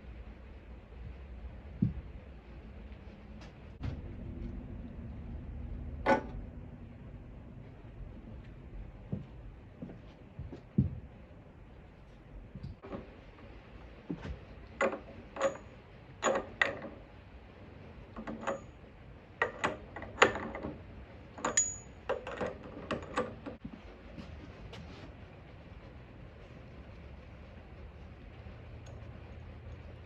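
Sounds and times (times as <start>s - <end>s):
metal tools clanking: 21.4s - 23.3s.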